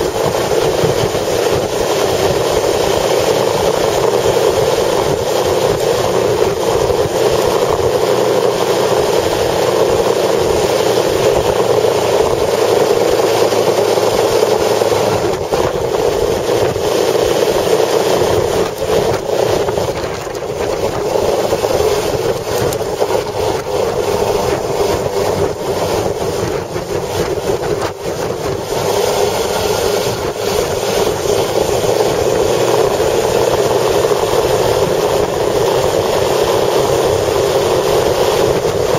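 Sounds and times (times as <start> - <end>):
road and wind noise: 0.0 - 38.9.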